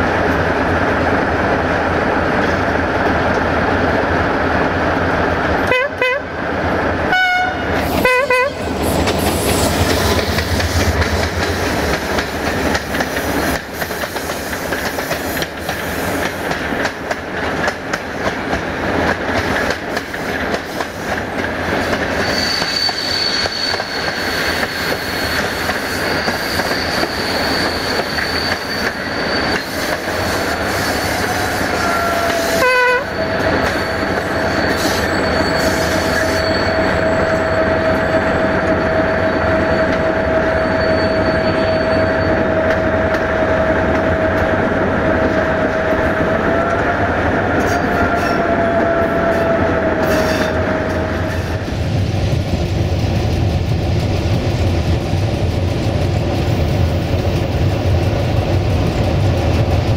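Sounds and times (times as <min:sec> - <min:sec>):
rail wheels rumbling and clattering: 0:00.0 - 0:59.9
locomotive horn blasts: 0:05.6 - 0:06.3, 0:07.1 - 0:08.6, 0:31.7 - 0:33.2
high wheel squeal: 0:21.9 - 0:42.7.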